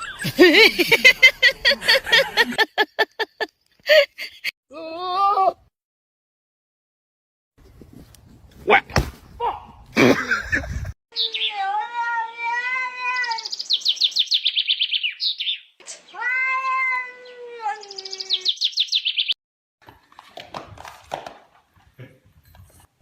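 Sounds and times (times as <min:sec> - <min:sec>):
cat yowling: 0:11.5 - 0:13.5, 0:16.1 - 0:18.4.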